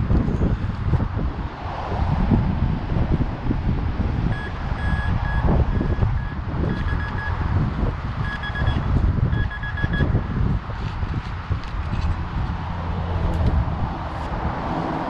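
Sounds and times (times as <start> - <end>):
wind rumble on microphone: 0.0 - 15.0
metal detector beeps: 4.3 - 7.4, 8.2 - 10.1.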